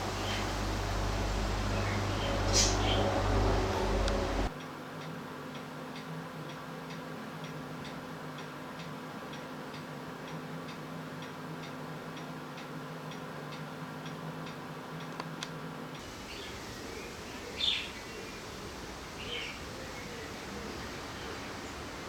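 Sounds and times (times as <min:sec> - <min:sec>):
low hum: 0:00.0 - 0:04.5
faint regular ticking: 0:04.0 - 0:17.4.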